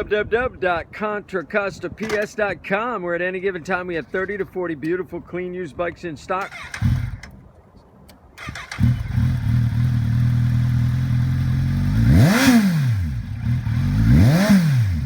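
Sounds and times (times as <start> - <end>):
motorcycle engine idling and revving: 6.5 - 7.3, 8.4 - 15.0.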